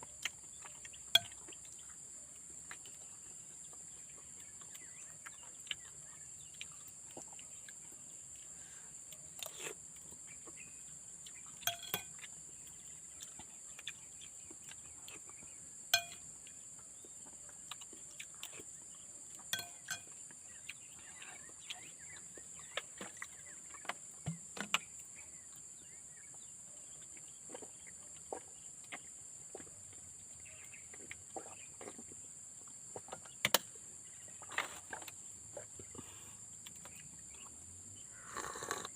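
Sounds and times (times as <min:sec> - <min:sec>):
cutlery clinking on a dish: 0:01.1 - 0:01.4, 0:11.6 - 0:12.2, 0:15.9 - 0:16.2, 0:19.5 - 0:20.2.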